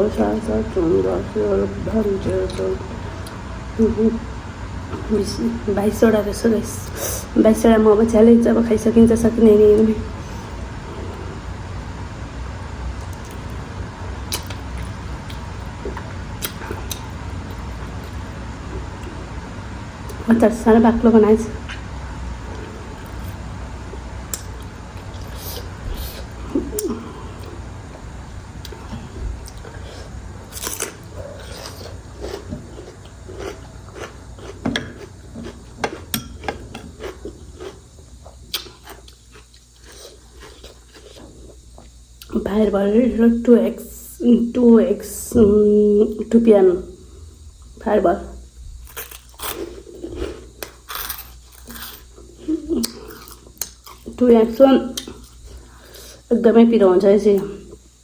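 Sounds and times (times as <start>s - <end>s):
low background rumble: 0.0s - 38.6s
chewing and biting food: 30.5s - 42.0s, 48.8s - 52.1s.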